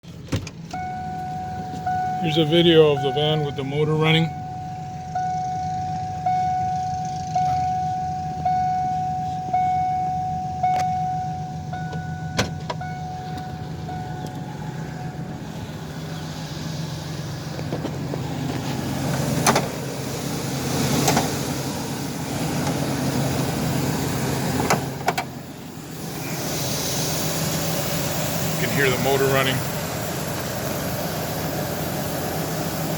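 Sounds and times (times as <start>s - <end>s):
van engine idling: 0.0s - 32.9s
dashboard warning chime: 0.7s - 16.4s
sharp clicks and knocks: 19.1s - 19.7s, 21.0s - 21.3s, 24.6s - 25.3s.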